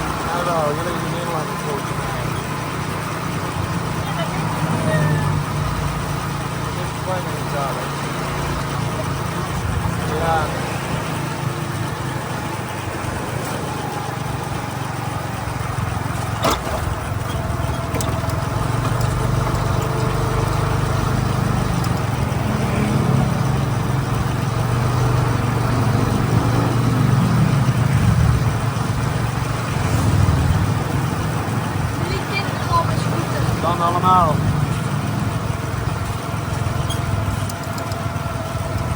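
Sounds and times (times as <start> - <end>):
motorcycle engine revving: 0.0 - 38.9
road and wind noise: 0.0 - 38.9.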